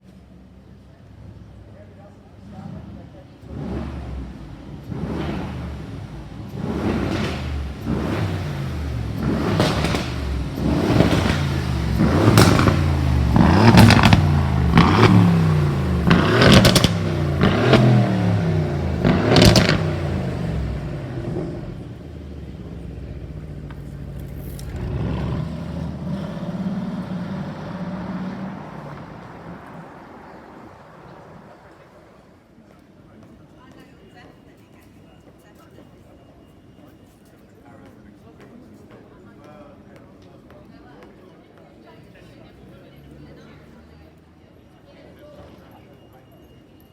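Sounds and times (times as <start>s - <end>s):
car engine revving: 2.4s - 32.2s.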